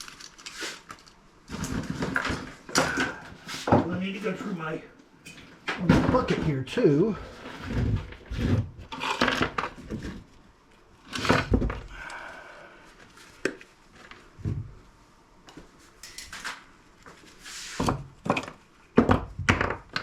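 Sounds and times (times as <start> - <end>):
scrap pieces knocking and clattering: 7.5 - 10.3, 17.8 - 20.0.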